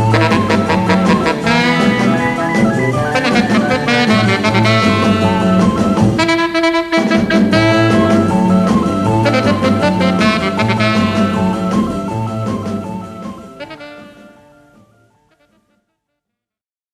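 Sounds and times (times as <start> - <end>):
bass and drums: 0.0 - 14.4
saxophone lead: 0.0 - 16.0.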